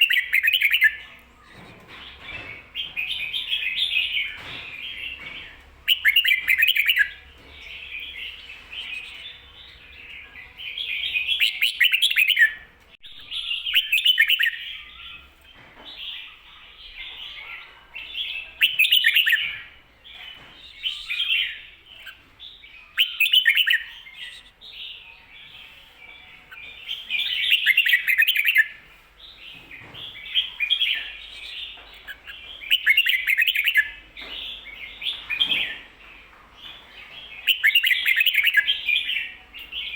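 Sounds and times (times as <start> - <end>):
bird singing warbled phrases: 0.0 - 39.9.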